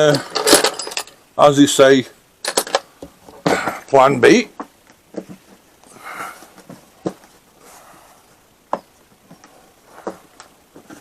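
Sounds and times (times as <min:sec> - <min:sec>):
soft rustle: 0:05.0 - 0:11.0.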